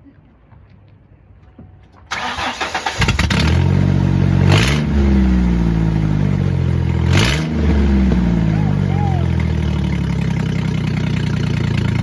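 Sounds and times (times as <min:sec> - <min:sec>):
car engine starter cranking: 0:02.1 - 0:03.7
car engine running: 0:03.3 - 0:12.0.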